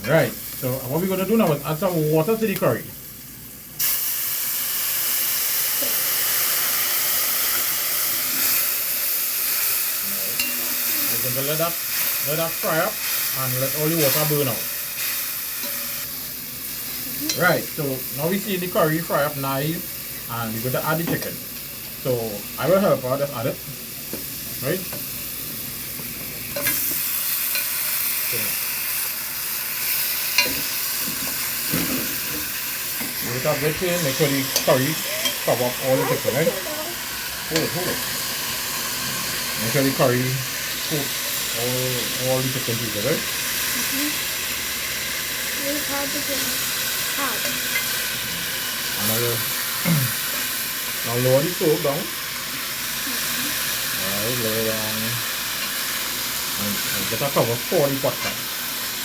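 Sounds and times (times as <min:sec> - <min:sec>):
water sizzling in hot oil: 0:00.0 - 0:59.0
clinks against a pot: 0:10.4 - 0:10.6.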